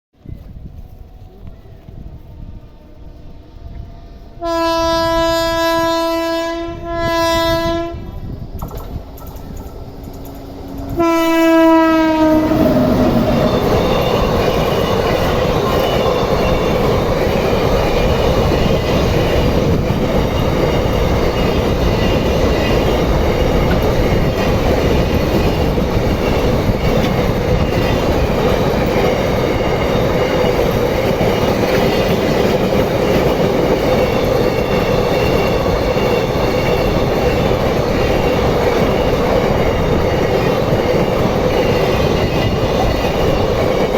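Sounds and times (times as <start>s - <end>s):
train wheels rumbling on rail: 0.2s - 43.9s
train horn: 2.2s - 8.3s, 10.8s - 16.8s.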